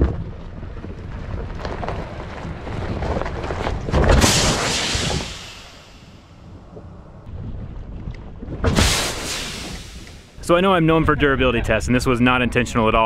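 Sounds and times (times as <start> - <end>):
truck rolling over rocky ground: 0.0 - 8.8
wind buffeting microphone: 0.0 - 13.0.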